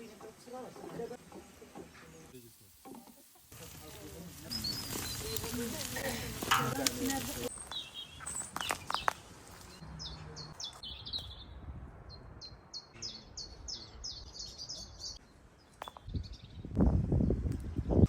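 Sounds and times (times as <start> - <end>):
small bird chirping: 7.5 - 11.5.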